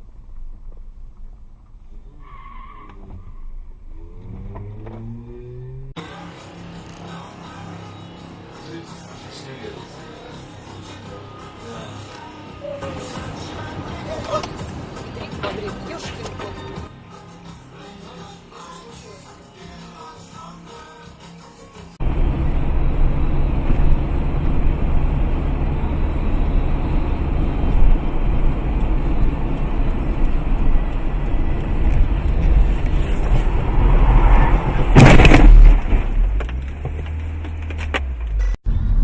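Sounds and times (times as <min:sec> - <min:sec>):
car road and engine rumble: 0:00.0 - 0:17.0, 0:22.0 - 0:39.0
loud car crash bang: 0:34.6 - 0:36.6.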